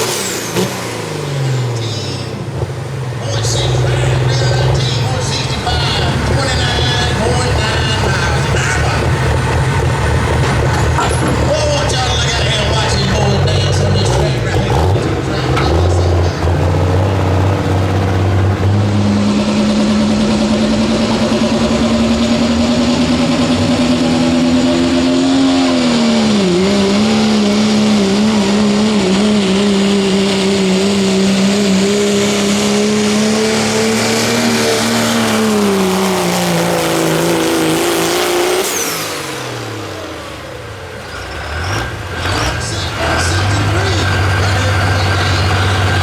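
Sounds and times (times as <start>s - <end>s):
diesel truck engine revving high: 0.0s - 46.0s.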